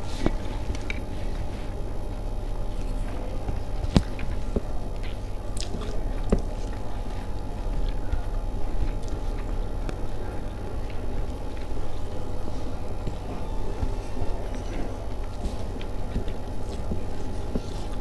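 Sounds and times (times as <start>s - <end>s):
low hum: 0.0s - 18.0s
person chewing food: 0.0s - 18.0s.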